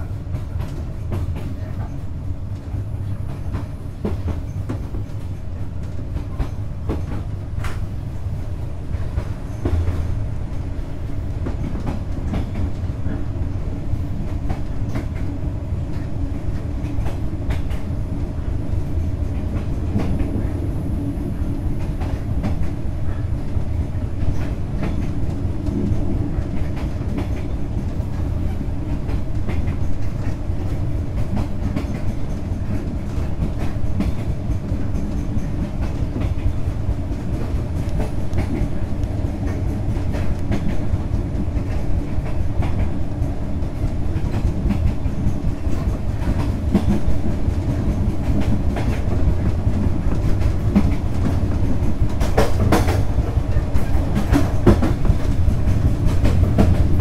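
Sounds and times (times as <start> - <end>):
train carriage rumble: 0.0 - 57.0.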